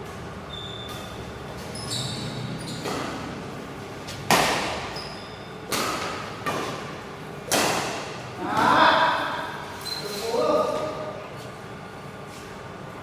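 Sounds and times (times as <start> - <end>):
shoes squeaking on court: 0.0 - 5.7, 9.7 - 10.3
rackets hitting shuttlecock: 4.1 - 5.0, 5.6 - 8.8.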